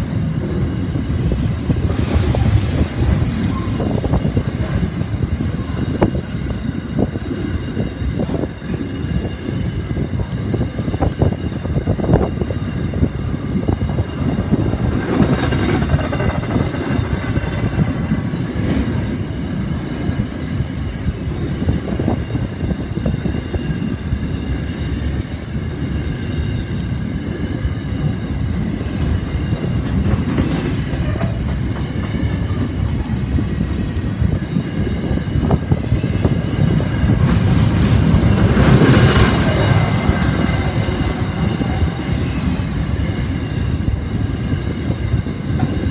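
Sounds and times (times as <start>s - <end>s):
train wagons rumbling and clattering: 0.0s - 45.9s.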